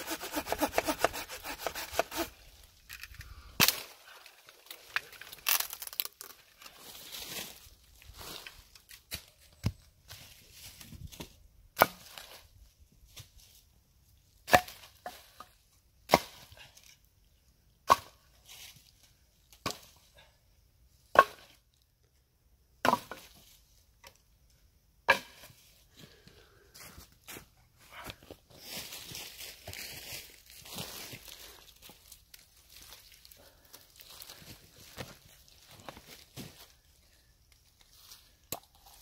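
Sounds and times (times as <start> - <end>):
axe chopping wood: 0.1 - 2.3, 11.8 - 12.1, 14.4 - 14.9, 21.1 - 21.6.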